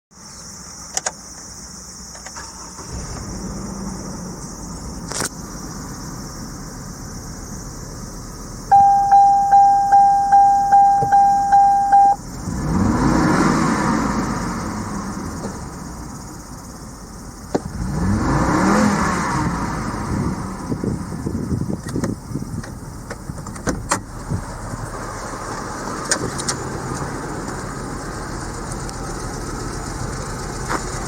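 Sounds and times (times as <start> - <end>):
car engine revving and idling: 1.6 - 31.0
car starter cranking: 2.1 - 4.2
dashboard warning chime beeping: 8.7 - 12.2.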